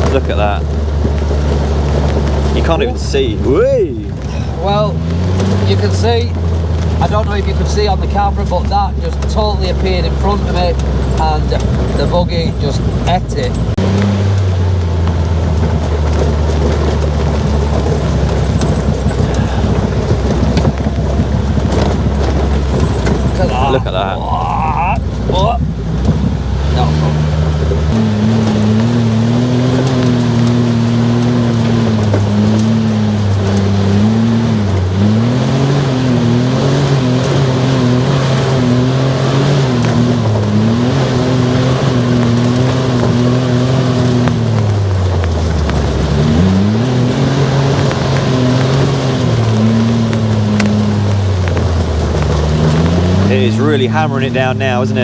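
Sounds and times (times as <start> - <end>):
buggy engine droning: 0.0 - 55.0
rain and wet tyres hiss: 0.0 - 55.0
knocks and rattles: 4.9 - 34.9.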